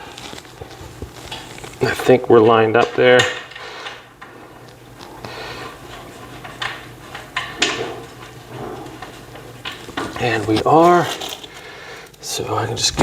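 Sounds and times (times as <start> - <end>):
furniture parts knocking and scraping: 5.8 - 11.4.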